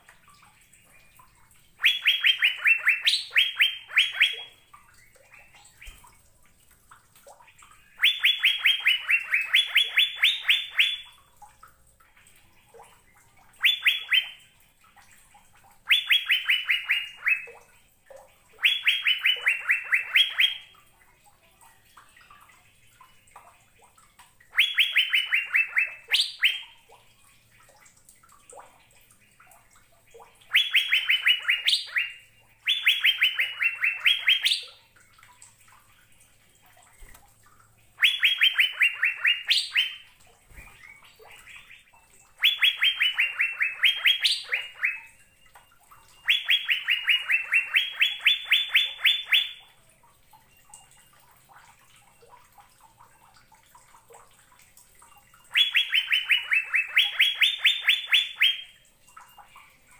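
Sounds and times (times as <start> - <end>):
bird singing whistled notes: 1.8 - 4.5, 8.0 - 11.1, 13.6 - 14.4, 15.9 - 17.5, 18.6 - 20.7, 24.6 - 26.7, 30.5 - 34.8, 38.0 - 49.7, 55.1 - 59.3.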